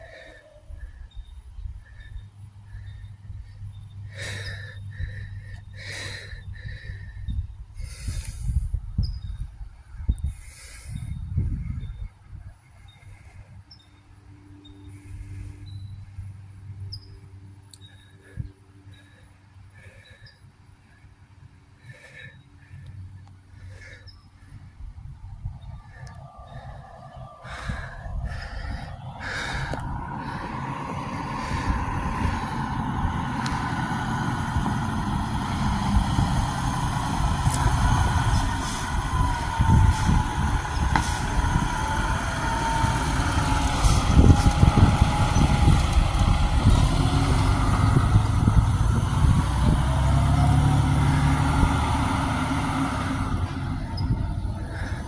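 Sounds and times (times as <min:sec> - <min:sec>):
fire engine driving by: 0:24.9 - 0:55.0.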